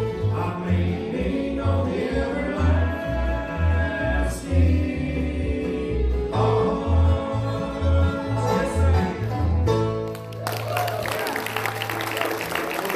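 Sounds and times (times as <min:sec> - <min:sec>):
string instruments: 0:00.0 - 0:12.9
voices singing in harmony: 0:00.2 - 0:09.2.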